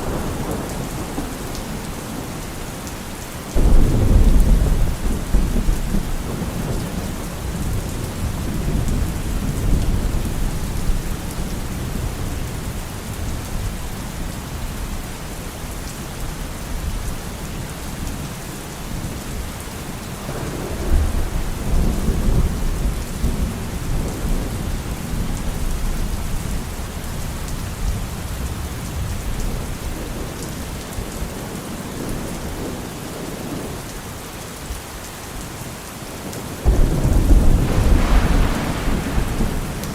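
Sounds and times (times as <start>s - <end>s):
steady rain: 0.0s - 39.9s
rolling thunder: 3.6s - 12.3s, 20.3s - 26.6s, 36.6s - 39.9s.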